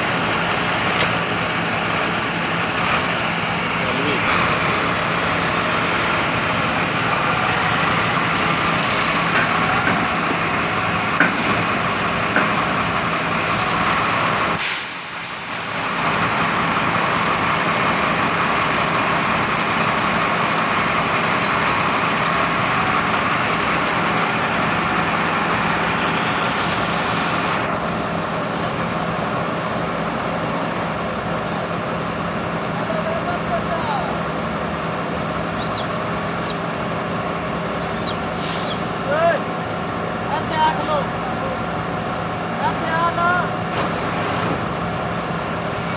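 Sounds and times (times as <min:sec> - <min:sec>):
truck engine and hydraulics: 0:00.0 - 0:45.9
sharp hiss of air: 0:13.4 - 0:13.9, 0:14.6 - 0:16.0, 0:38.3 - 0:39.0.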